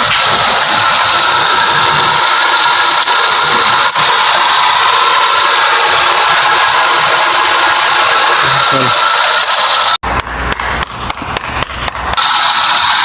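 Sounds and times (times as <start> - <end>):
car engine running: 0.0 - 10.0
alternator whine: 0.0 - 13.0.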